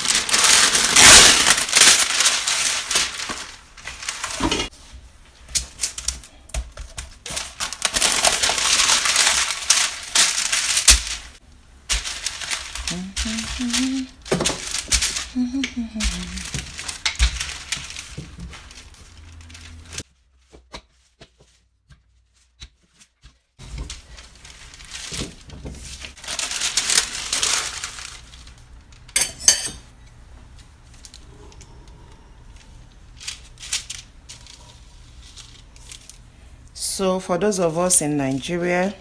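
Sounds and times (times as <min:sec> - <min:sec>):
parchment paper rustling: 0:00.0 - 0:39.0
kitchenware clinking: 0:29.2 - 0:29.9.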